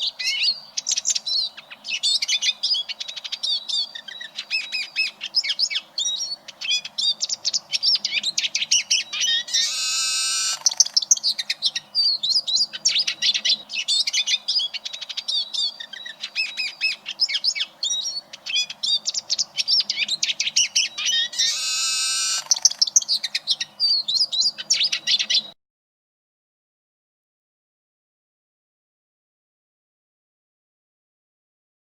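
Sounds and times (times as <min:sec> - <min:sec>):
bird twittering song: 0:00.0 - 0:25.6.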